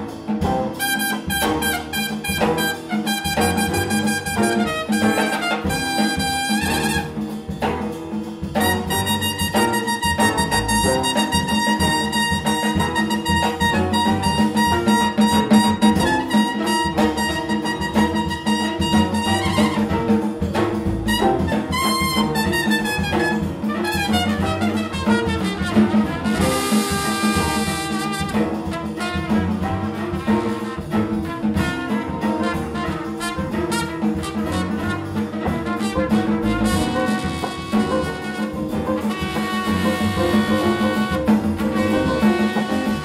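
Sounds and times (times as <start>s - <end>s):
big band jazz ensemble: 0.0s - 43.0s
trumpet playing: 0.7s - 7.4s, 8.6s - 43.0s.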